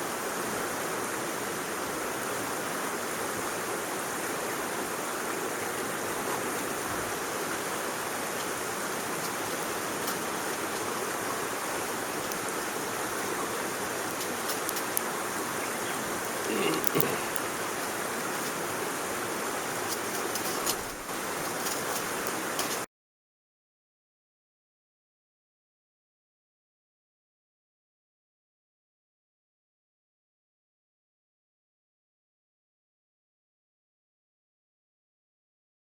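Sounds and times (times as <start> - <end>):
faint clicks: 14.0 - 18.7, 19.8 - 22.9.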